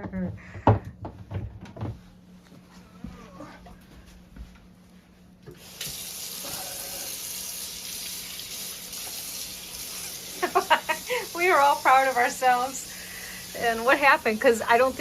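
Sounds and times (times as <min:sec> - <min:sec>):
water running into a sink: 0:05.5 - 0:15.0.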